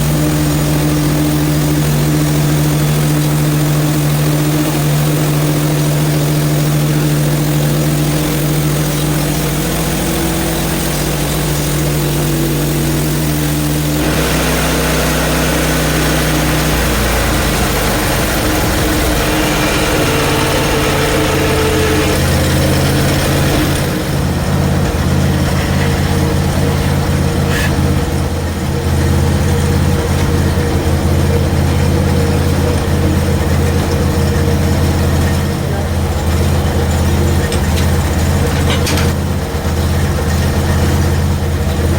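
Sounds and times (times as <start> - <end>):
sawmill engine running under load: 0.0 - 41.9
wide hiss: 10.6 - 28.1
band blade sawing log: 14.0 - 28.1.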